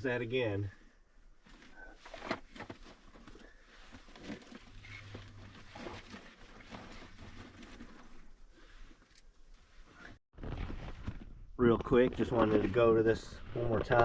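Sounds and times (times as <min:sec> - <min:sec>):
camping gear knocks and rustling: 0:01.5 - 0:08.4, 0:10.3 - 0:12.8.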